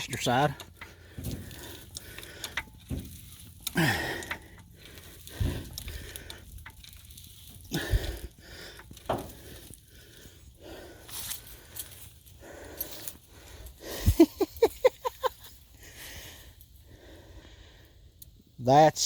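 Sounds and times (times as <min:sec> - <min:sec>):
floor jack clunking and creaking: 0:00.0 - 0:06.8, 0:08.8 - 0:09.7.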